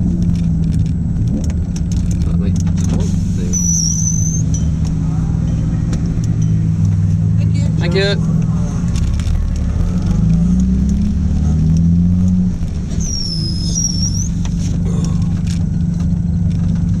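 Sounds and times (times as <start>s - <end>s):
car engine from inside cabin: 0.0s - 17.0s
brief high whistle: 3.5s - 4.4s, 13.0s - 14.4s.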